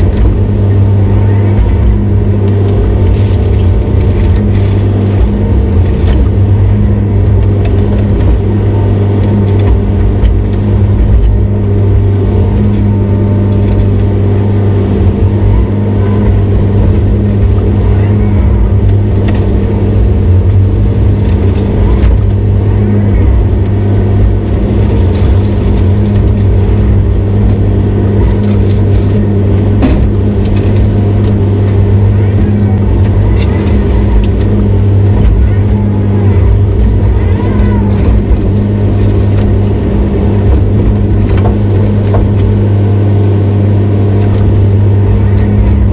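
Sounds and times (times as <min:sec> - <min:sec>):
diesel engine droning: 0:00.0 - 0:45.9
knocks and clanks: 0:14.9 - 0:42.8.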